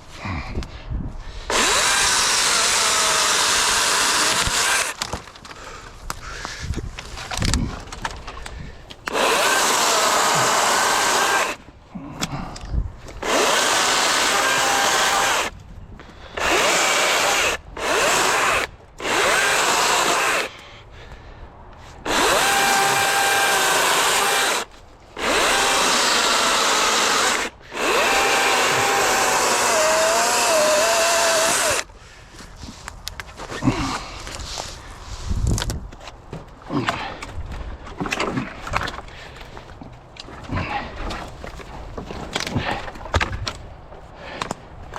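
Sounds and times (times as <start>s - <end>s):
chainsaw cutting logs: 1.4s - 5.8s, 9.0s - 12.4s, 13.0s - 15.6s, 16.3s - 20.6s, 22.0s - 31.9s.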